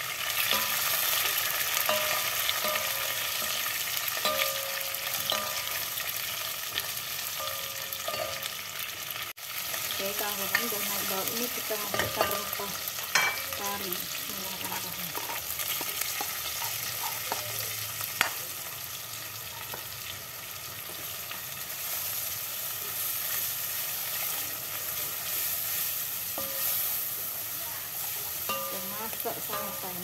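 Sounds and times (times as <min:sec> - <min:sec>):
spice paste sizzling in oil: 0:00.0 - 0:30.0
spatula knocking pot: 0:01.8 - 0:03.6, 0:11.8 - 0:13.6
spatula scraping pot: 0:10.4 - 0:18.4.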